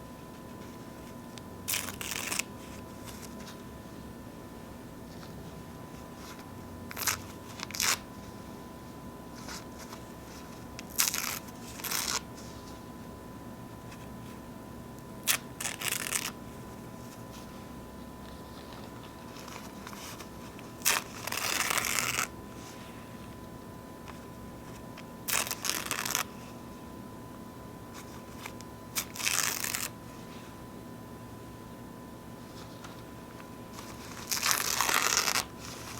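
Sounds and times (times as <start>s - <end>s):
paper napkins tearing: 1.7s - 3.6s, 6.1s - 8.1s, 9.4s - 12.5s, 15.2s - 16.4s, 18.3s - 22.7s, 25.3s - 26.4s, 28.0s - 29.9s, 33.7s - 35.9s
faint paper crinkles: 15.3s - 23.4s, 32.4s - 35.9s.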